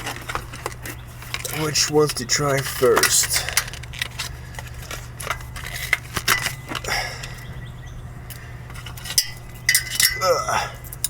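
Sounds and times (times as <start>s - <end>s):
steady low hum: 0.0s - 11.0s
metal hand tools clinking: 1.3s - 3.8s, 8.8s - 11.0s.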